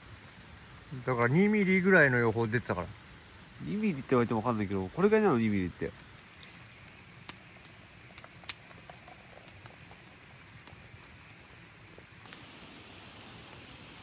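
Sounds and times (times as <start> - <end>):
light rain pattering: 0.0 - 14.0
sharp drip ticks: 5.8 - 12.8.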